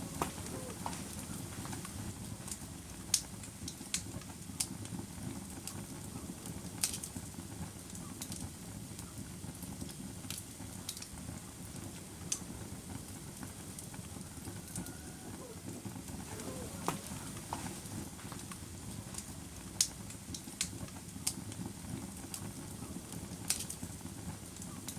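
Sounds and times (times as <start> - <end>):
low rush of flames: 0.0 - 24.7
fire crackles and pops: 0.0 - 24.9.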